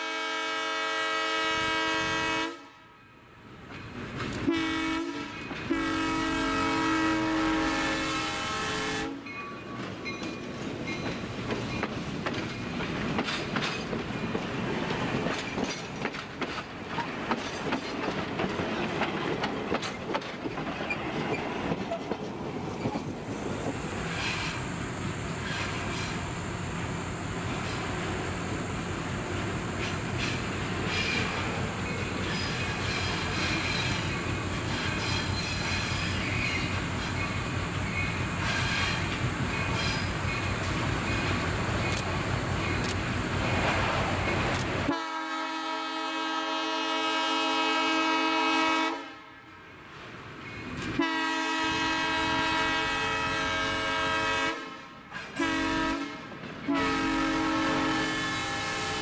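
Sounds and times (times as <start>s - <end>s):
train wheels clattering over rail joints: 9.3s - 24.7s, 27.5s - 44.9s.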